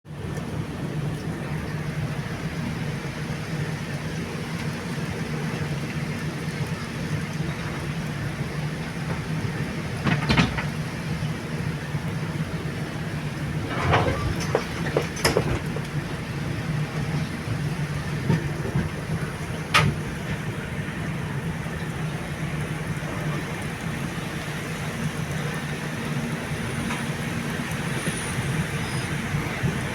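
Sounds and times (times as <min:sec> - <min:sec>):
train rumbling on rails: 0:00.1 - 0:29.9
sharp clacks and knocks: 0:13.6 - 0:16.0.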